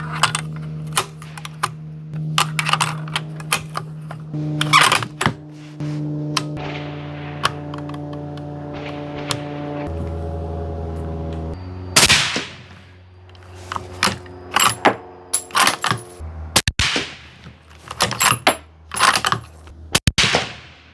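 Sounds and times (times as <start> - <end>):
music with sustained bass notes: 0.0 - 16.6
gunshot-like bangs: 6.6 - 10.0, 12.0 - 12.8, 16.7 - 17.4, 20.1 - 20.9.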